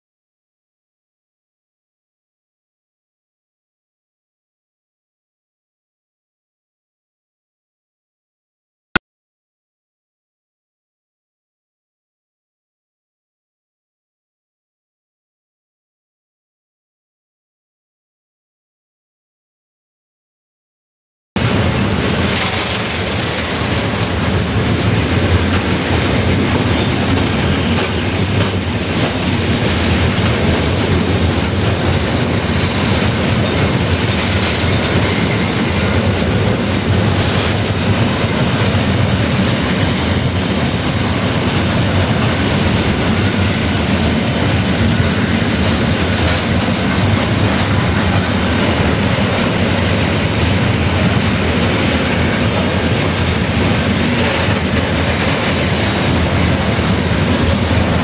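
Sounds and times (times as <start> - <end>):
train wheels rumbling on rails: 21.4 - 58.0
wheels clacking over rail joints: 21.4 - 58.0.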